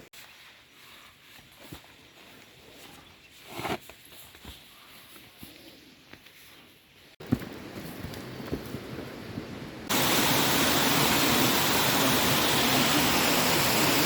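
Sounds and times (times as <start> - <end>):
rush of water: 9.9 - 14.0.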